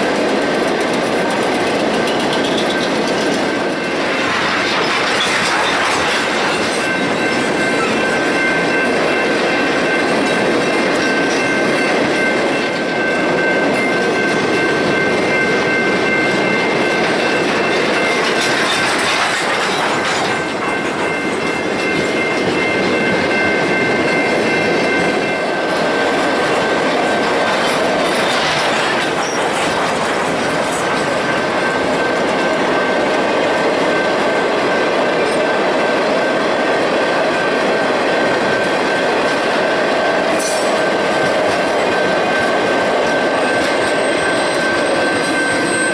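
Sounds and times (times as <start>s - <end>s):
freight train rumble and clatter: 0.0s - 45.9s
high-pitched wheel squeal: 43.4s - 45.9s.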